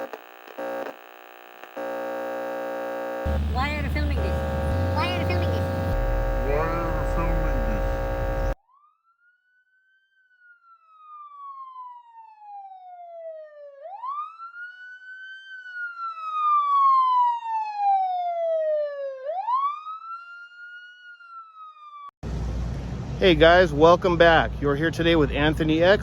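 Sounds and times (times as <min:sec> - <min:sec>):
siren wailing: 0:01.8 - 0:08.6, 0:10.4 - 0:22.1.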